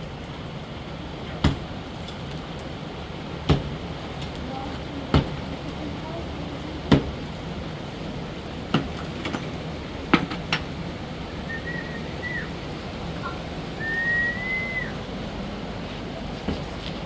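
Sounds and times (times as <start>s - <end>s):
steady low hum: 2.9s - 17.0s
whistled notes: 11.2s - 15.1s.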